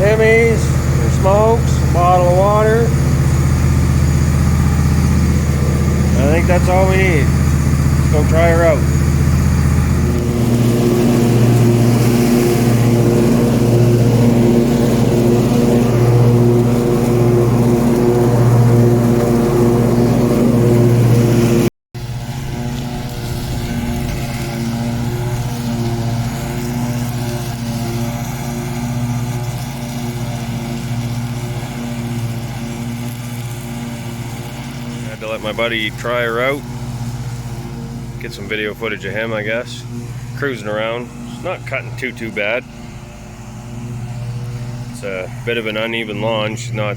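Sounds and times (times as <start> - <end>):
lawn tractor engine running: 0.0 - 46.9.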